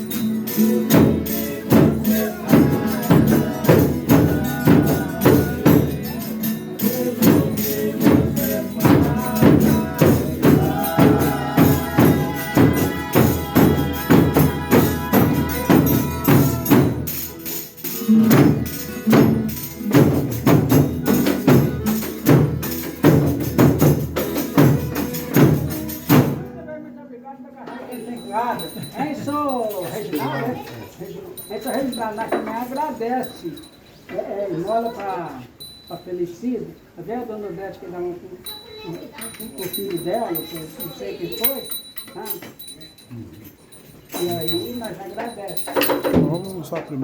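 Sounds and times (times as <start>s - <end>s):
tambourine beat: 0.0s - 26.5s, 38.4s - 47.0s.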